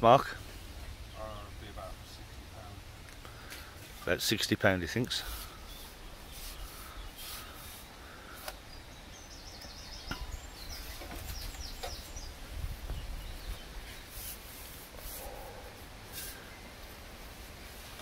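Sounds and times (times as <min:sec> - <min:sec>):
small bird singing: 0:00.9 - 0:03.5, 0:05.0 - 0:16.7
wind rumble on microphone: 0:10.0 - 0:13.9.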